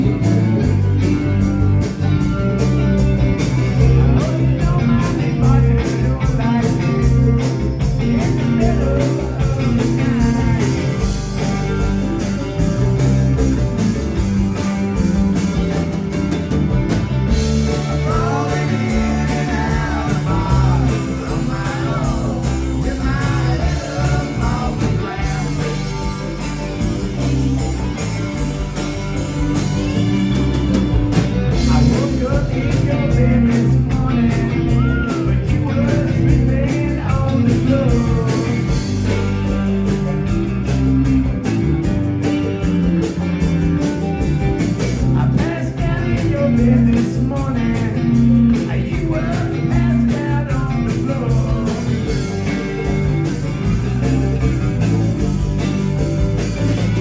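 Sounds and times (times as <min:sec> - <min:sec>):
drum kit: 0:00.0 - 0:57.0
electric guitar: 0:00.0 - 0:57.0
person singing: 0:03.7 - 0:11.6, 0:17.5 - 0:26.8, 0:31.5 - 0:39.6, 0:45.0 - 0:52.9.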